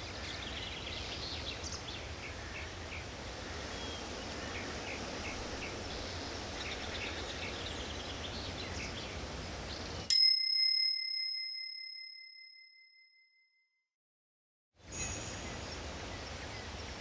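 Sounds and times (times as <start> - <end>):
forest ambience hiss: 0.0 - 10.0, 14.8 - 17.0
small birds chirping: 0.0 - 10.1, 15.2 - 17.0
bell-like timer chime: 10.1 - 13.5, 14.9 - 15.8.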